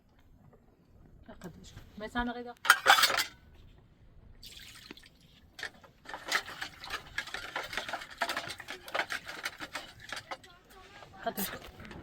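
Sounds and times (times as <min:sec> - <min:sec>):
dishes and utensils clinking: 0:02.7 - 0:03.4, 0:05.6 - 0:10.6.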